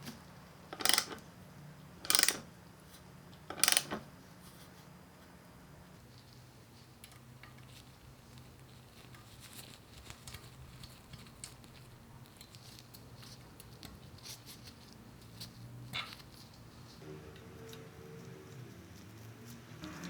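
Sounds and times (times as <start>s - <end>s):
low steady hum: 14.9s - 20.0s.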